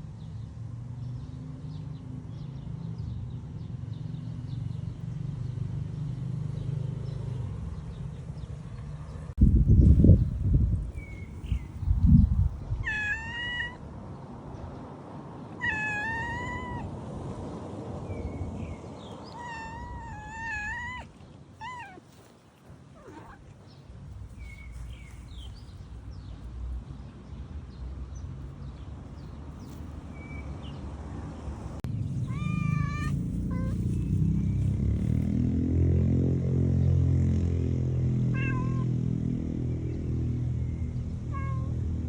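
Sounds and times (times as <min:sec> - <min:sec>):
cat meowing: 0:12.8 - 0:13.9, 0:15.5 - 0:16.9, 0:19.2 - 0:22.2, 0:23.0 - 0:23.5, 0:32.2 - 0:34.6, 0:38.3 - 0:38.9, 0:41.3 - 0:41.7.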